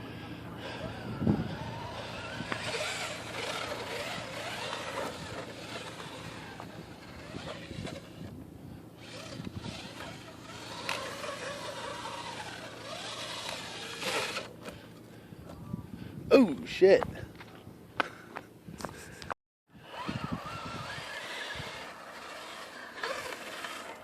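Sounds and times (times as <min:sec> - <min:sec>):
toy truck motor whining: 0:00.6 - 0:08.4, 0:09.0 - 0:14.8, 0:19.8 - 0:24.0.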